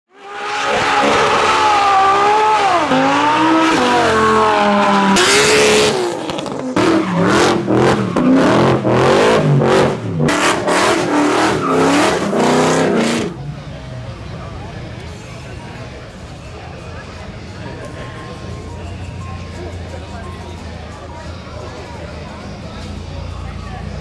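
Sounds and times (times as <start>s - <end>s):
supercar engines revving: 0.1s - 16.5s.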